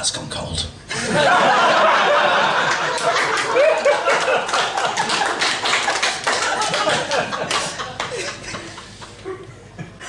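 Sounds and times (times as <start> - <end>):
audience laughing: 0.9 - 10.0
audience applauding: 2.1 - 9.2.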